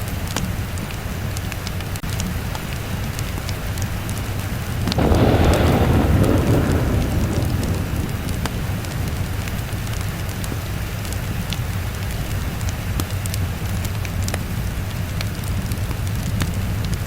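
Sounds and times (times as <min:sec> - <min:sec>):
steady rainfall: 0:00.0 - 0:17.0
rolling thunder: 0:04.8 - 0:11.5.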